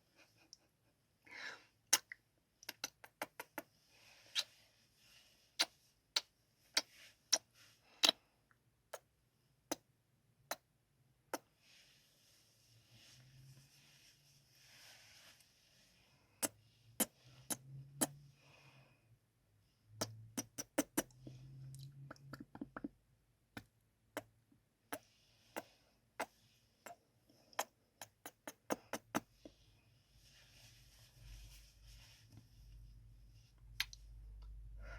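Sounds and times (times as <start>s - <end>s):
soft breathing: 1.2s - 1.8s, 3.7s - 5.9s, 11.5s - 19.9s, 25.0s - 34.9s
kissing lip smacks: 1.9s - 3.7s, 4.3s - 4.5s, 5.6s - 8.2s, 16.4s - 18.2s, 20.0s - 21.2s, 27.6s - 29.3s, 33.8s - 34.0s.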